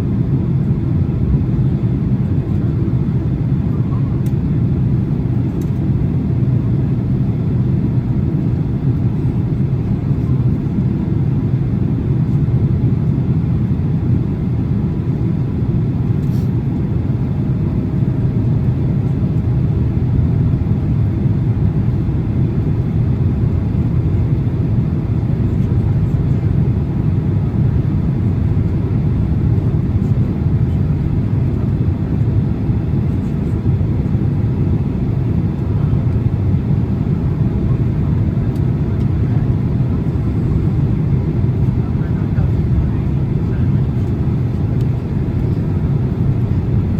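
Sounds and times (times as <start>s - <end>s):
airplane cabin engine rumble: 0.0s - 46.9s.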